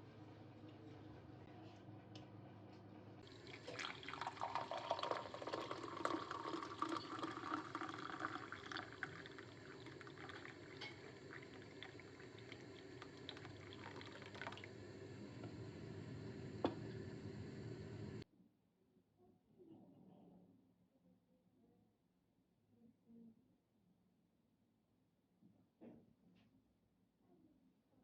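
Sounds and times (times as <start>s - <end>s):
liquid dripping: 3.2s - 15.8s
liquid pouring into container: 3.2s - 17.7s.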